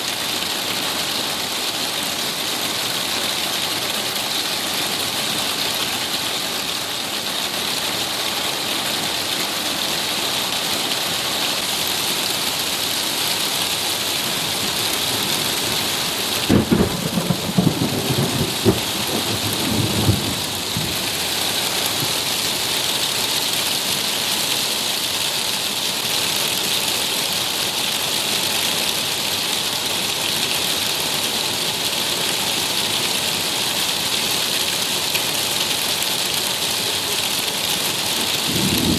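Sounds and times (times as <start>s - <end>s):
heavy rain: 0.0s - 38.9s
thunder crackling and rumbling: 14.5s - 22.4s, 38.4s - 38.9s.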